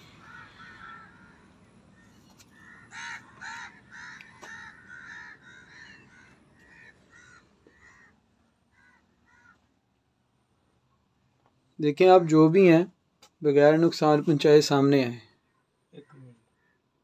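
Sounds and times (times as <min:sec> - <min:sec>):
short repeated bird calls: 0:15.3 - 0:17.0.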